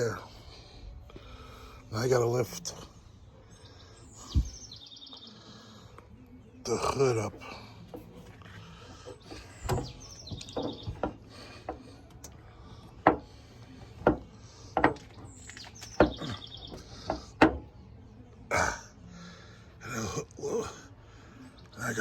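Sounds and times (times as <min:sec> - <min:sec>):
birds chirping: 0:00.0 - 0:22.0
sharp clicks and knocks: 0:09.3 - 0:12.4, 0:14.0 - 0:17.7.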